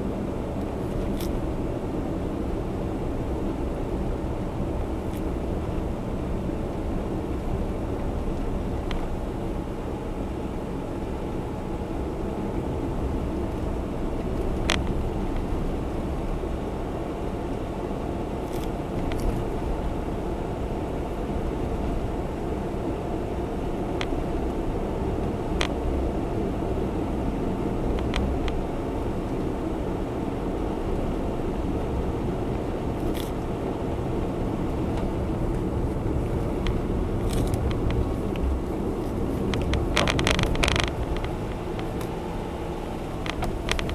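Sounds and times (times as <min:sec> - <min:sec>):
car road and engine noise: 0:00.0 - 0:43.9.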